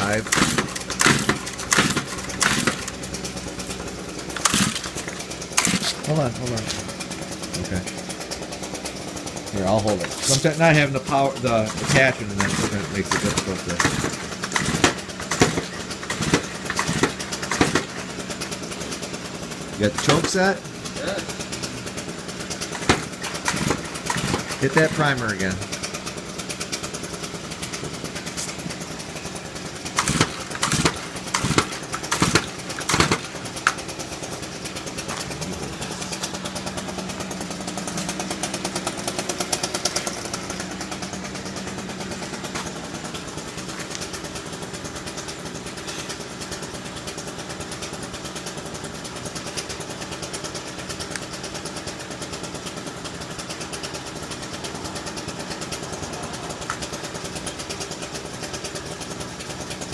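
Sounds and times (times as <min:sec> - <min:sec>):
sharp engine surges: 0:00.0 - 0:18.3, 0:19.6 - 0:43.1
two-stroke engine running: 0:00.0 - 0:59.9.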